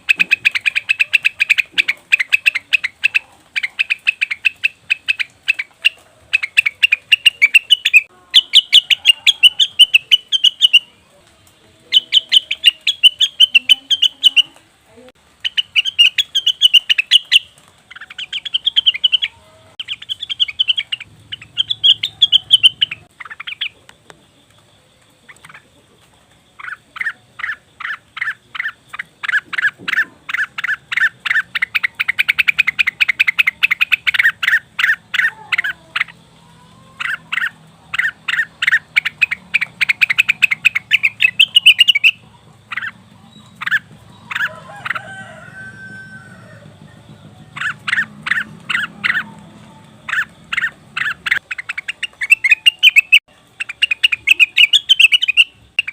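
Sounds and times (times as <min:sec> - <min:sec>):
bird calling in sharp chips: 0:00.0 - 0:11.0, 0:15.4 - 0:23.8, 0:26.5 - 0:46.6, 0:47.6 - 0:55.9.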